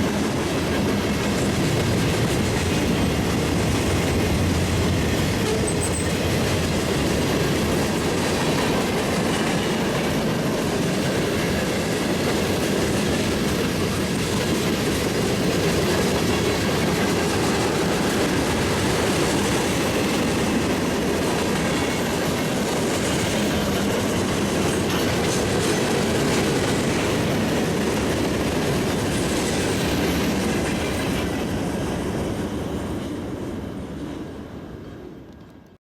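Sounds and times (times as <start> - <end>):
wheel clatter on rails: 0.0 - 31.5
freight train rumbling past: 0.0 - 35.7.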